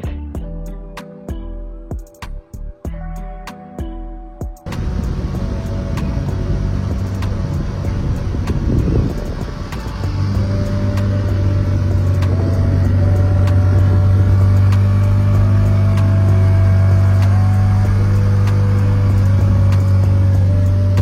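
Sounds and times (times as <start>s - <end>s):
faint music notes: 0.0s - 21.0s
engine droning: 4.7s - 21.0s.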